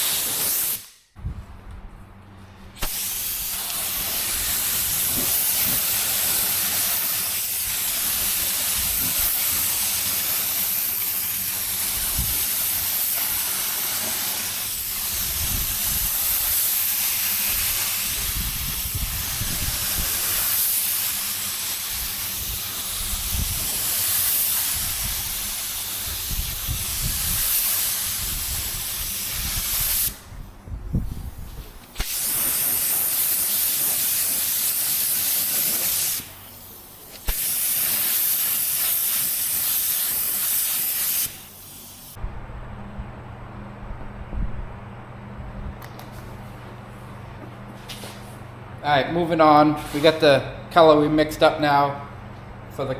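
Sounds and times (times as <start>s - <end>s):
paint spray gun hissing: 0.0s - 1.1s, 2.8s - 30.3s, 31.0s - 42.2s.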